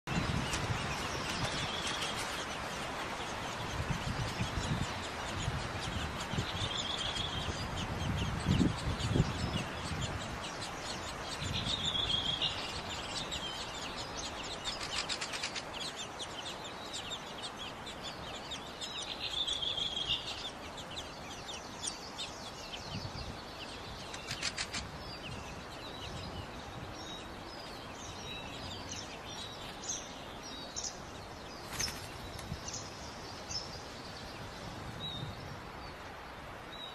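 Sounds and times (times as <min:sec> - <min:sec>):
bird calls: 0:00.1 - 0:35.3
rattling bird calls: 0:24.0 - 0:25.0.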